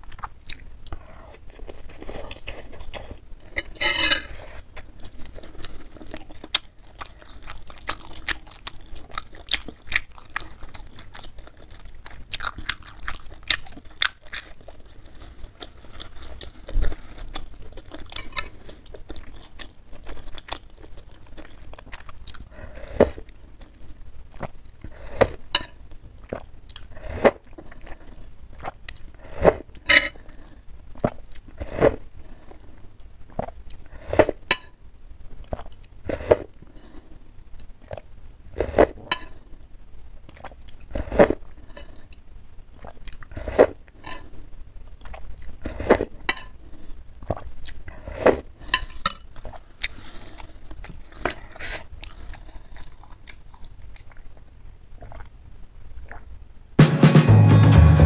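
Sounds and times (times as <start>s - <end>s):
wet chewing mouth clicks: 50.7s - 55.4s.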